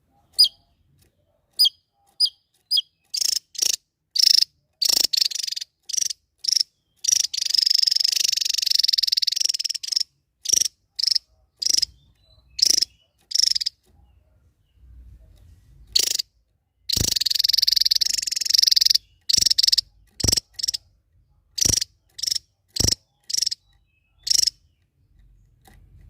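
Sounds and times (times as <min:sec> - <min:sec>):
songbird chirping: 0:00.0 - 0:26.0
fast buzzy bird trill: 0:00.4 - 0:00.6, 0:01.6 - 0:13.8, 0:15.9 - 0:16.3, 0:16.9 - 0:20.8, 0:21.6 - 0:24.6.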